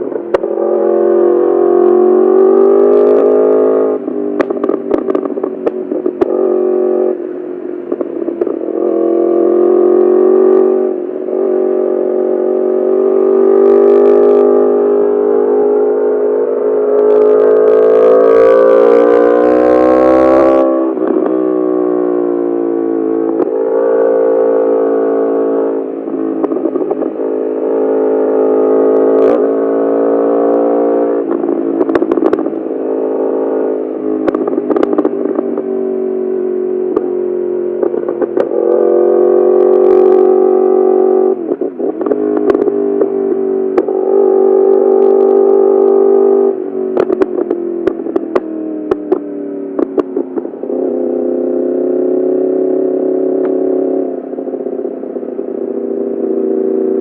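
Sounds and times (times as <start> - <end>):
exhaust crackles and pops: 0.0 - 0.8, 3.9 - 9.0, 18.9 - 21.9, 22.8 - 23.8, 24.8 - 27.9, 28.5 - 29.8, 30.5 - 57.0
motorcycle engine revving: 0.0 - 57.0.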